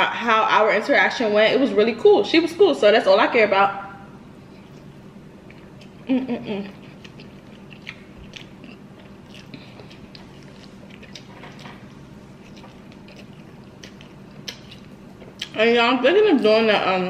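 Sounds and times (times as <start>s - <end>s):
person chewing and biting food: 4.5s - 15.6s.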